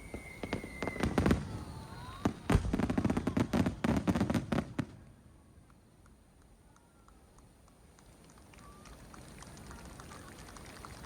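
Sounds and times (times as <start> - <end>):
fireworks bangs and crackles: 0.0 - 5.8.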